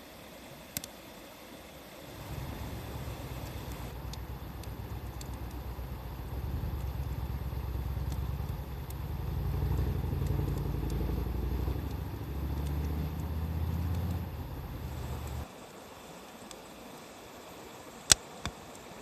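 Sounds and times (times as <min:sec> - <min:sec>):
wood fire crackling: 0:02.0 - 0:15.5
low rumble: 0:02.1 - 0:15.4.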